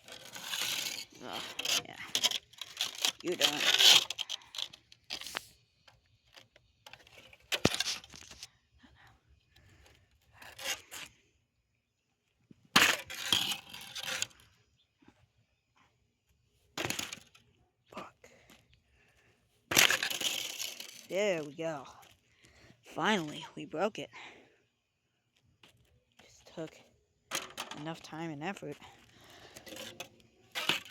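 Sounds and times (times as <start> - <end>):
fan parts scraping and cracking: 0.0 - 5.4, 6.2 - 8.5, 19.7 - 21.5, 29.0 - 30.9.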